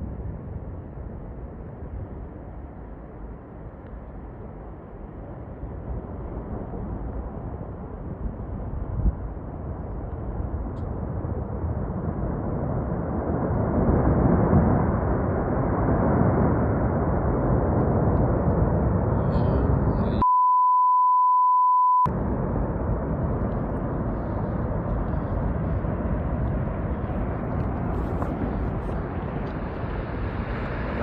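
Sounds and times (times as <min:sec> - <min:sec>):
storm wind buffeting microphone: 0:00.0 - 0:20.2, 0:22.1 - 0:31.0
censor bleep: 0:20.2 - 0:22.1.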